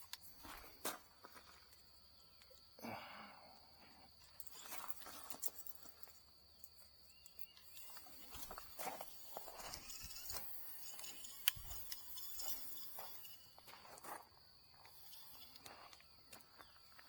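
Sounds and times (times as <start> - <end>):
high-pitched insect whine: 0.0 - 17.0
footsteps: 7.7 - 17.0.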